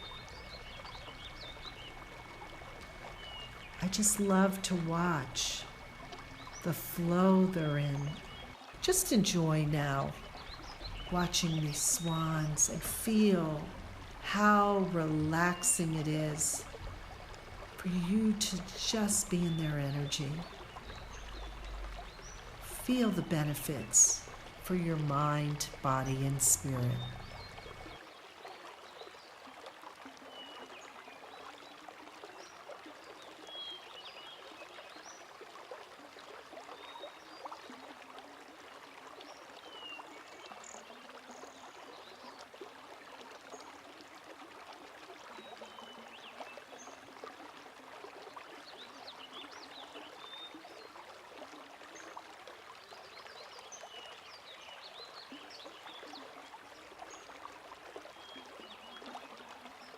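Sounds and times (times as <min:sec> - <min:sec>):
faint trickling water: 0:00.0 - 0:59.9.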